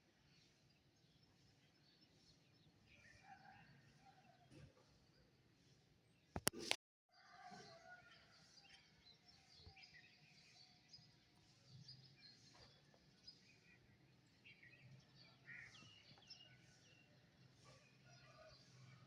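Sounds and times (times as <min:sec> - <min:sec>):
small birds chirping: 0:08.6 - 0:19.0.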